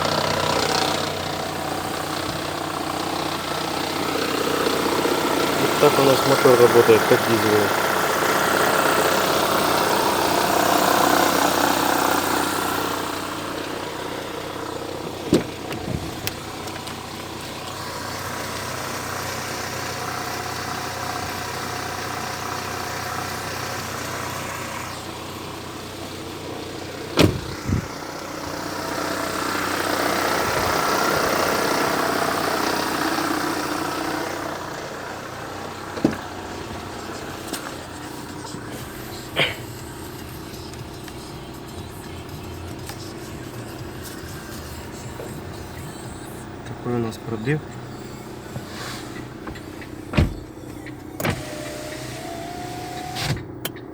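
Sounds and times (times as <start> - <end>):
car engine idling: 0.0 - 53.9
gearbox rattle: 13.6 - 18.6, 27.0 - 28.0, 35.8 - 39.4.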